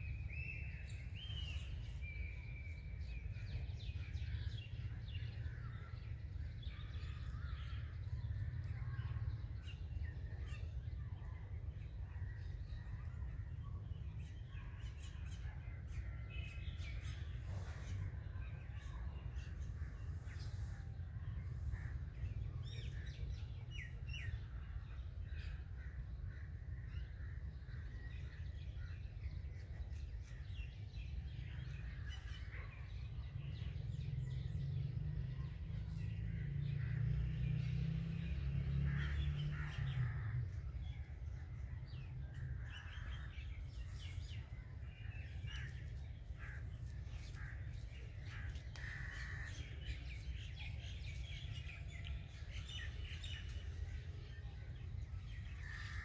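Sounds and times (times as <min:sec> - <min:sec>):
birds calling: 0:33.8 - 0:56.0.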